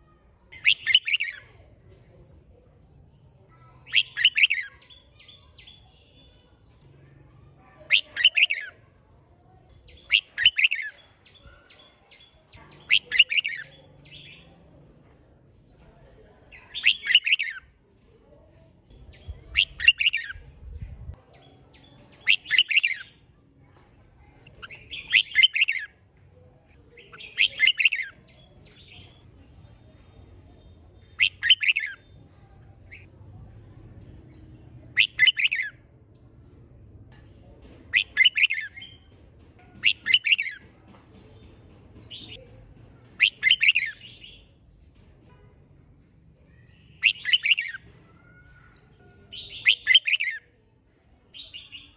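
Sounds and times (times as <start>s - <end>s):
bird chattering song: 0.5s - 1.9s, 3.1s - 6.9s, 7.8s - 9.0s, 9.6s - 14.6s, 15.6s - 17.7s, 18.4s - 20.4s, 21.3s - 23.2s, 24.4s - 26.2s, 26.9s - 29.7s, 30.8s - 32.2s, 32.8s - 33.1s, 34.2s - 36.7s, 37.8s - 39.1s, 39.7s - 40.6s, 41.4s - 44.9s, 46.2s - 50.5s.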